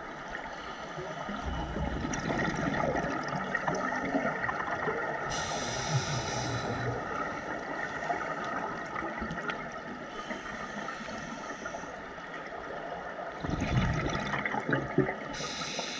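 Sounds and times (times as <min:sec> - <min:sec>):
underwater bubbling exhalation: 0:01.2 - 0:10.4, 0:13.3 - 0:15.5
regulator hissing inhalation: 0:05.3 - 0:07.0, 0:15.4 - 0:15.9.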